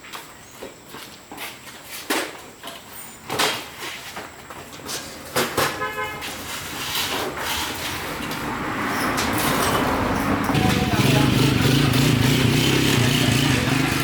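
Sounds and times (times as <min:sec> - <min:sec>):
motorcycle engine: 0:05.0 - 0:14.0
motorcycle horn beep: 0:05.5 - 0:06.5.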